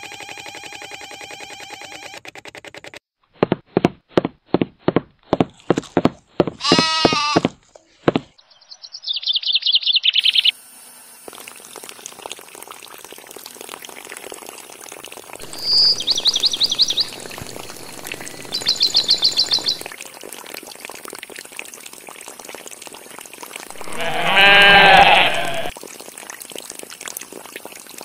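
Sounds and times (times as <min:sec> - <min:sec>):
sheep bleating: 0:06.6 - 0:07.5, 0:23.7 - 0:25.7
high bird chirps: 0:08.4 - 0:10.5, 0:15.4 - 0:19.9
water pouring from pipe: 0:10.6 - 0:28.0.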